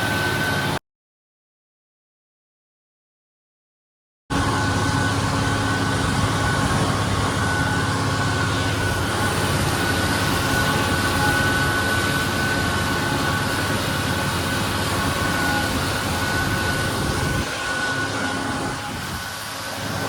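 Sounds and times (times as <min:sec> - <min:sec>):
high whine: 0:00.0 - 0:00.8, 0:04.3 - 0:20.0
tractor engine rumbling: 0:04.3 - 0:20.0.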